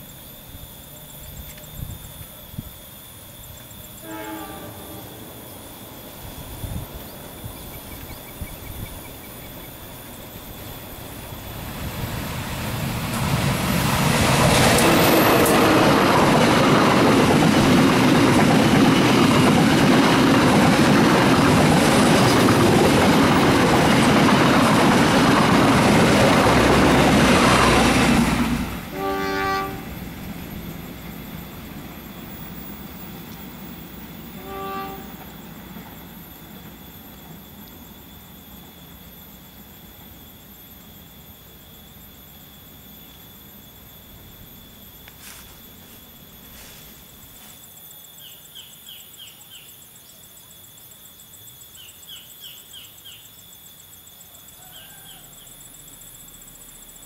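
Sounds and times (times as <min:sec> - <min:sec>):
train passing on rails: 0:00.0 - 0:57.0
train horn: 0:04.0 - 0:05.4, 0:26.6 - 0:28.0, 0:28.9 - 0:30.0, 0:34.3 - 0:35.4.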